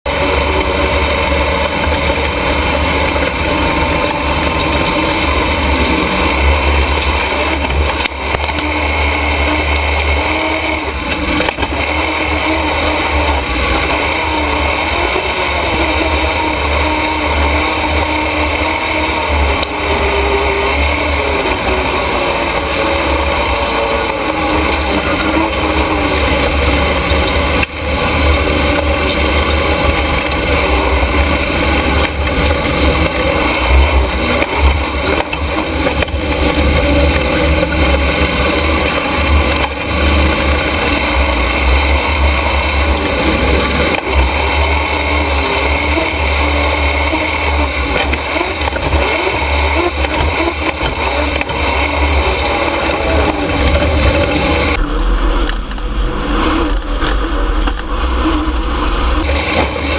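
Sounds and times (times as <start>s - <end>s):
race truck engine at speed: 0.0s - 59.9s.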